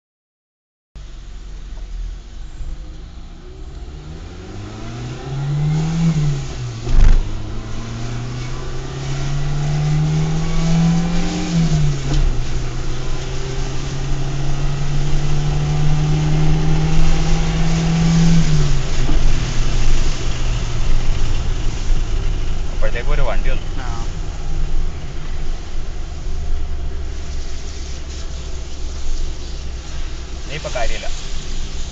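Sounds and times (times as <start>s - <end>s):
car engine accelerating: 1.0s - 31.9s
road and wind noise: 1.0s - 31.9s
sharp thump: 6.8s - 7.3s.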